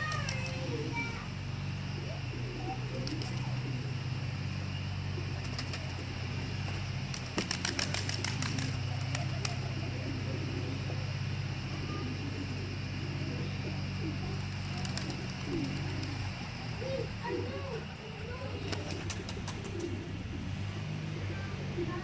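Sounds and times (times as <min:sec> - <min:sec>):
wings flapping: 0:00.0 - 0:21.9
pigeons cooing: 0:00.0 - 0:22.0
steady low hum: 0:00.0 - 0:22.0.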